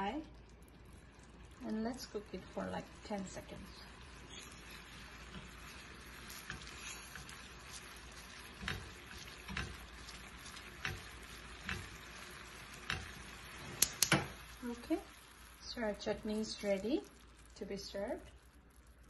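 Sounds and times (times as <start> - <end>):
chutney sizzling in a pan: 0.0 - 19.0
spatula scraping and knocking pan: 4.3 - 14.4.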